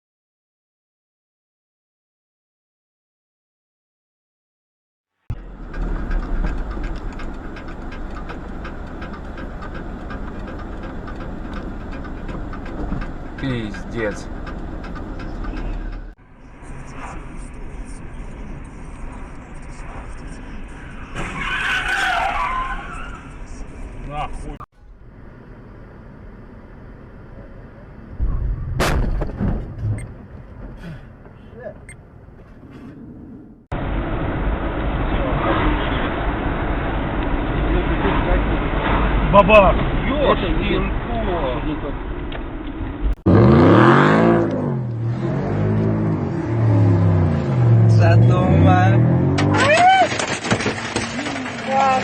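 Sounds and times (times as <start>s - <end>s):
road and engine rumble: 5.3s - 52.0s
sharp crash: 28.2s - 30.0s
heavy low thump: 28.2s - 31.4s.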